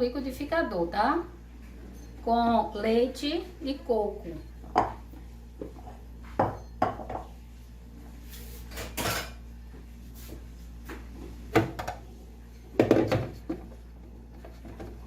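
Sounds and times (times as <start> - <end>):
dishes and utensils clinking: 8.7 - 9.4.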